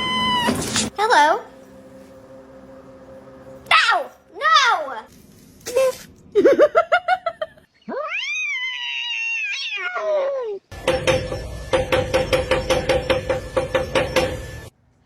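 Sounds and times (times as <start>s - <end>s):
steady hum: 0.9s - 4.4s
cat meowing: 7.9s - 10.6s.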